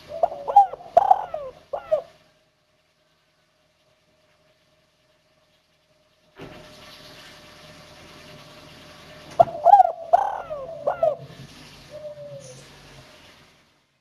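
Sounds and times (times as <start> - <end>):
dove cooing: 0.0 - 2.2, 9.4 - 12.7.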